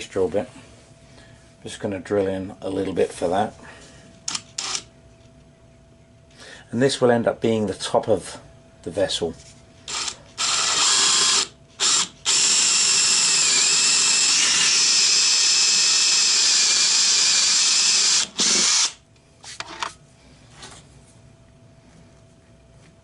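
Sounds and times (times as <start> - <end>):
power drill boring into wood: 9.9 - 19.0.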